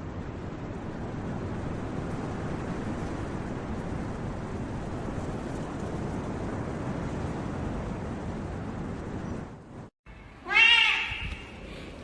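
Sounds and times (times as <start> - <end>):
low rushing noise: 0.0 - 12.0
cat meowing: 10.4 - 11.6.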